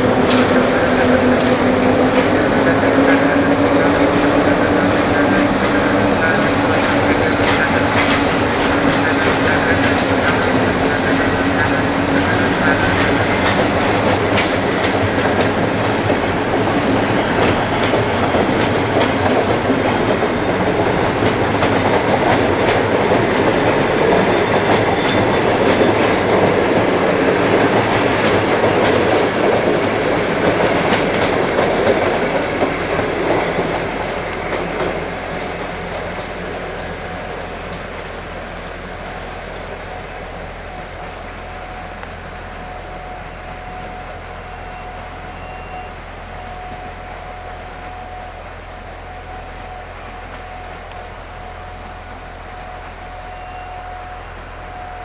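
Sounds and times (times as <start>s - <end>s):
train wheels clicking over rail joints: 0.0s - 42.2s
train rumble: 0.0s - 55.0s.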